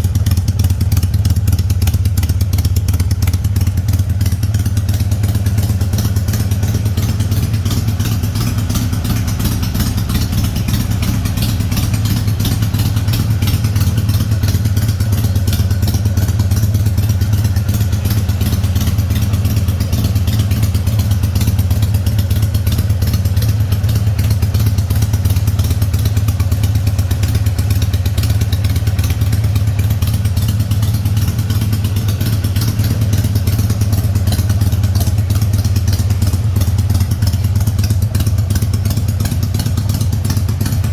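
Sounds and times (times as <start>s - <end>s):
motorcycle engine idling loudly: 0.0s - 40.9s.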